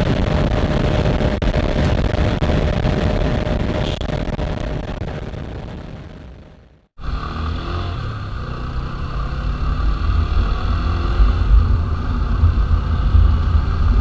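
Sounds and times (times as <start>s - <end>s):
motorcycle engine: 7.0s - 14.0s.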